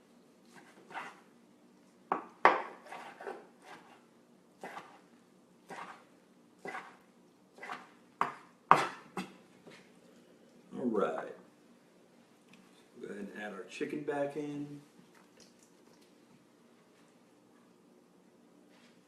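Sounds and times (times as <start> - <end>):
knife chopping on cutting board: 2.1 - 4.0, 4.6 - 5.0, 5.7 - 6.0, 7.6 - 9.4.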